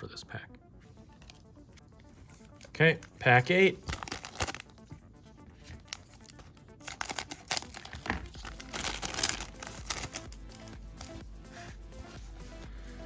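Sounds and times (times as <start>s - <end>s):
foil wrapper crinkling and tearing: 2.4s - 4.8s, 5.6s - 11.2s.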